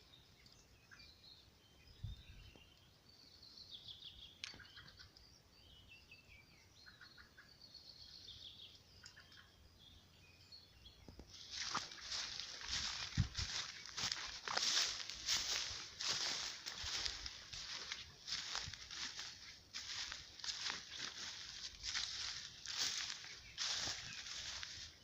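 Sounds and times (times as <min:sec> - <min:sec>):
small birds chirping: 0:00.0 - 0:25.0
crunching footsteps: 0:11.1 - 0:25.0.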